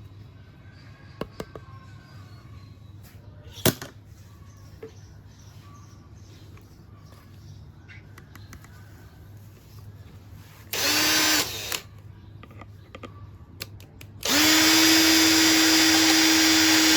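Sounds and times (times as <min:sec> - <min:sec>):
small electric drill: 0:10.7 - 0:11.9, 0:14.2 - 0:16.9.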